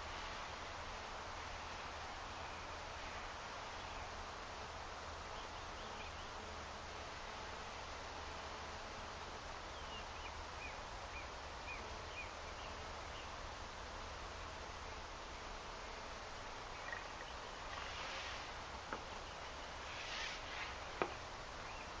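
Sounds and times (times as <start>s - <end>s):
outdoor background hiss: 0.0s - 22.0s
small bird chirping: 16.6s - 18.1s.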